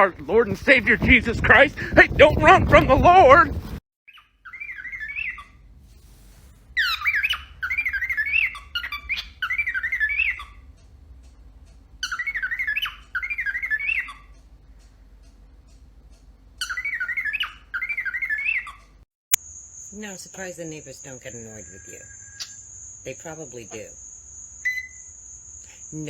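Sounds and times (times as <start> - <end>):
bird wavering alarm call: 4.1 - 5.6, 6.8 - 10.7, 24.6 - 25.2.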